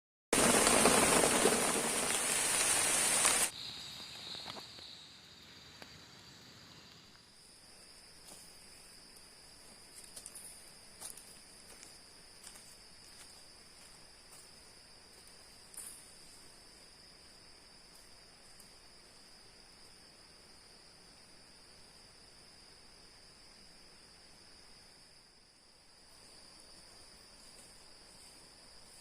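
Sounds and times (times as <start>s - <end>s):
heavy rain hissing: 0.4s - 3.5s
insects droning: 0.4s - 29.0s.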